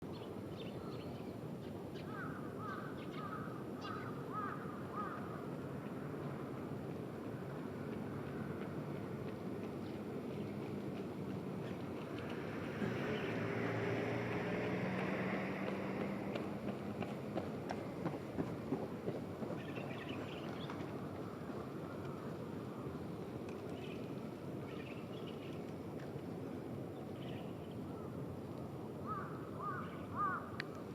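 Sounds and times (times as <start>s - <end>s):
outdoor background noise: 0.0s - 30.9s
small birds chirping: 19.5s - 22.2s, 23.5s - 25.7s.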